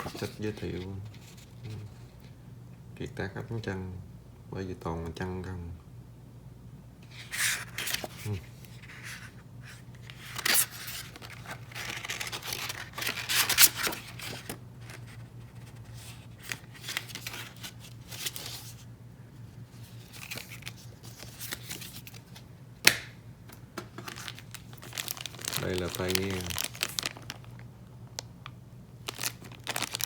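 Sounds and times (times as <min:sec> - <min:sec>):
paper and plastic rustling: 0:00.0 - 0:02.3, 0:07.1 - 0:18.9, 0:19.7 - 0:22.5, 0:23.9 - 0:27.6, 0:29.0 - 0:30.0.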